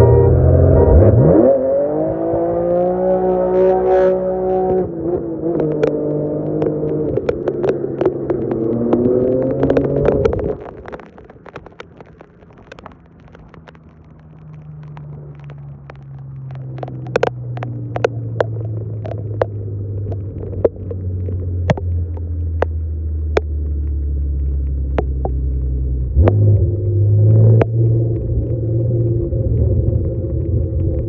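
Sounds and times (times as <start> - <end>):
diesel truck engine revving: 0.0 - 4.7
sharp clicks: 5.5 - 25.5.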